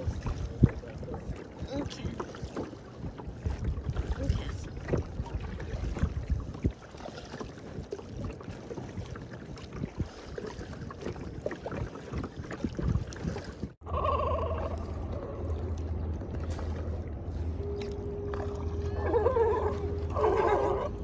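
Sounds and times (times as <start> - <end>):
paddle splashes: 0.0 - 21.0
water sloshing around kayak: 0.0 - 21.0
steady low rumble: 13.7 - 21.0.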